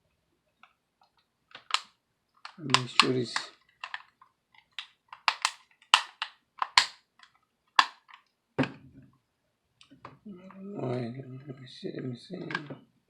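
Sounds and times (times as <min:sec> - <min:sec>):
plastic clicks and taps: 0:00.6 - 0:08.8.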